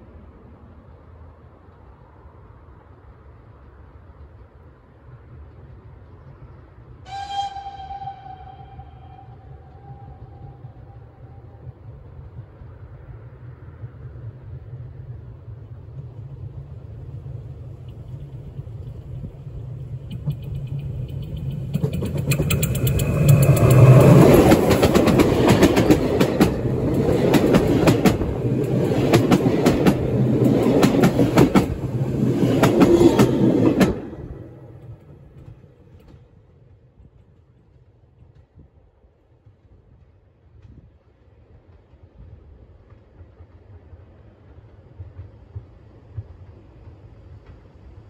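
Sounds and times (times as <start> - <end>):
train rumble: 0.0 - 48.0
wheels clacking over rails: 19.9 - 36.3.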